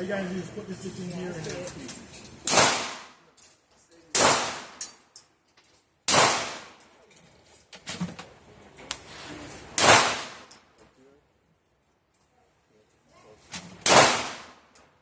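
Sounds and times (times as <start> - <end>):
gunshots with ringing tail: 2.4 - 3.1, 6.1 - 6.7, 13.8 - 14.6.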